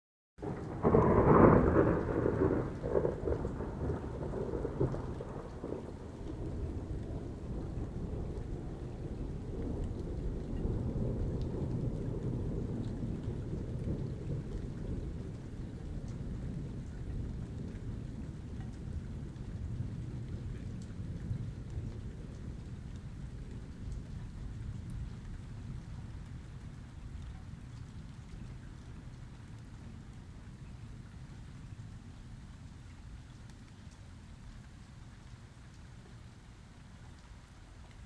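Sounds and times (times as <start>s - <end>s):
thunder rumbling: 0.4s - 26.7s
steady falling rain: 0.4s - 38.0s.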